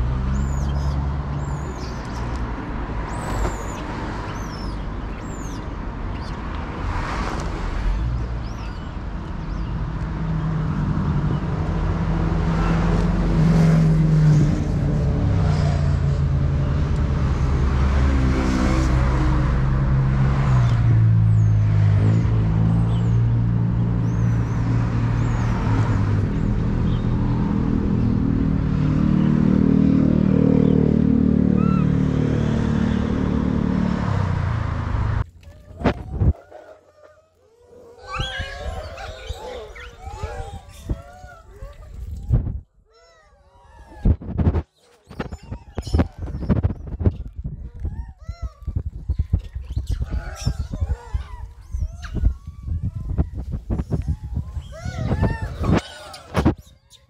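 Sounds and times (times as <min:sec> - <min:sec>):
bird chirps: 0:00.3 - 0:06.4, 0:08.4 - 0:09.8.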